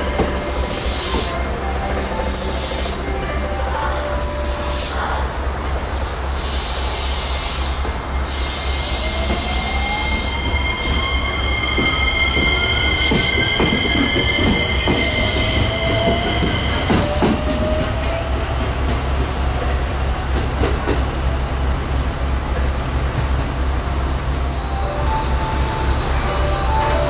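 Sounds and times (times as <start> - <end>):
electric train rumbling: 0.0 - 27.0
high squealing tones: 8.9 - 17.2.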